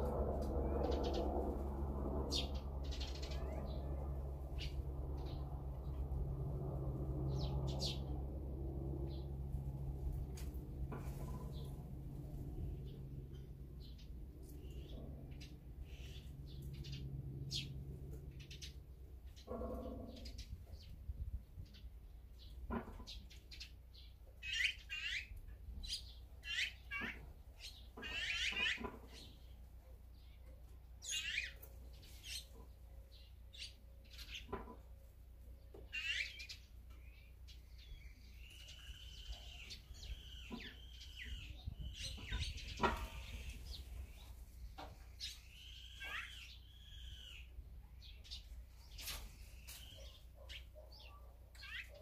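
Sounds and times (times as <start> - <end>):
wild birds calling: 2.2 - 5.5, 12.7 - 21.0, 24.4 - 34.8, 35.8 - 52.0.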